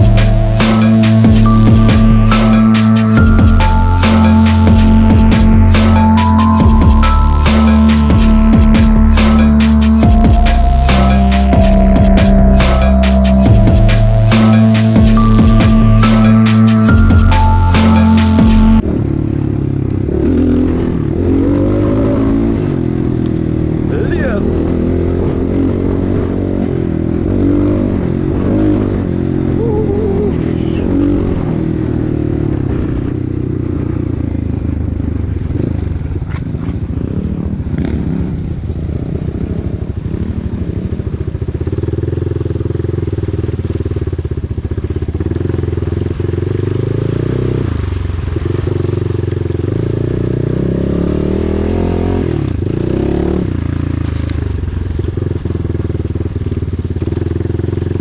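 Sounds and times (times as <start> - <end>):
motorcycle engine revving: 17.9 - 58.0.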